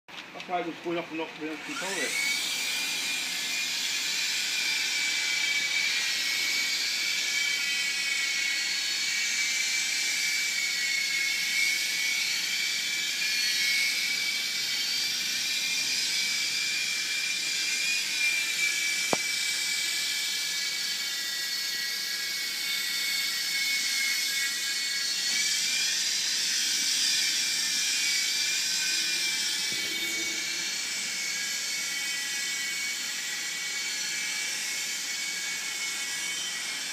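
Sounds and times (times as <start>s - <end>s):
rc helicopter motor whining: 0.5s - 36.9s
sharp click: 19.1s - 19.3s.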